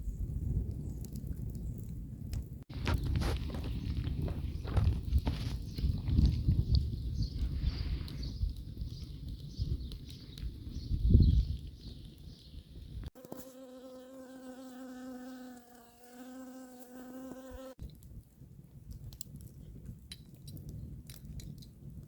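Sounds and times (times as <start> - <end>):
flying insect buzzing: 13.2 - 17.8.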